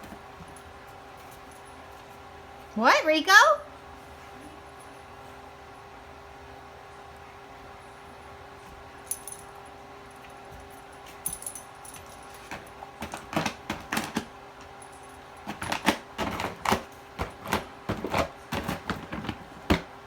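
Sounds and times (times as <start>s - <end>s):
dog clawing at cardboard: 15.5s - 19.9s.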